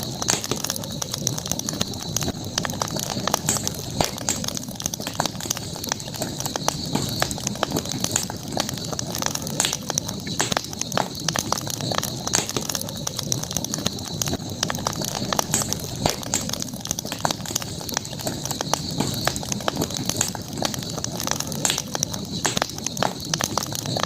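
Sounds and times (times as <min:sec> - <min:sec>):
campfire crackling and popping: 0:00.0 - 0:24.0
high-pitched hiss: 0:00.0 - 0:24.0.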